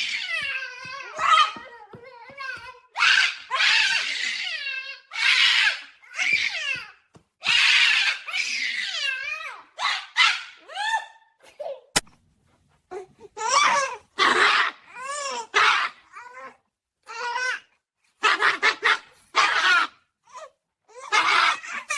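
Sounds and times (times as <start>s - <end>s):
sharp click: 12.0s - 12.2s.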